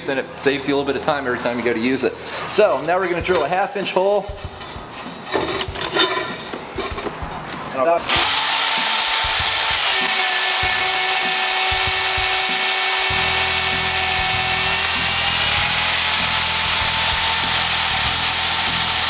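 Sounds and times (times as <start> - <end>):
drill motor whine: 8.1 - 19.0.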